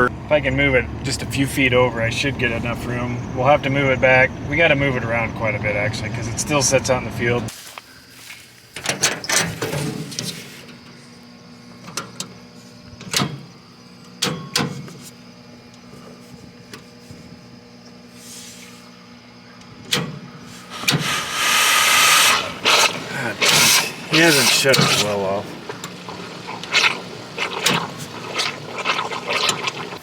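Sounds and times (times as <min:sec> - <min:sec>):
engine idling: 0:00.0 - 0:07.5, 0:20.6 - 0:30.0.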